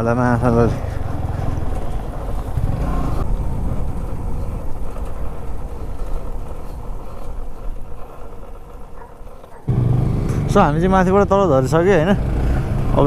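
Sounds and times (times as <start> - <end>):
wind rumble on microphone: 0.0 - 9.6
motorcycle engine running: 0.0 - 13.0.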